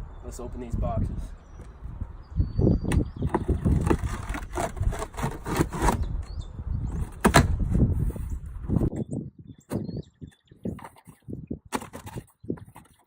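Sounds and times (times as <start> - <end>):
cardboard scraping and rustling: 3.2 - 6.3.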